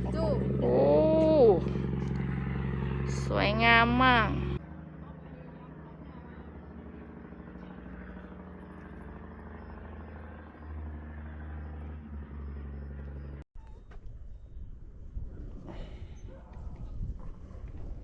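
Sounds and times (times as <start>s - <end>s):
vehicle engine running: 0.0s - 15.2s.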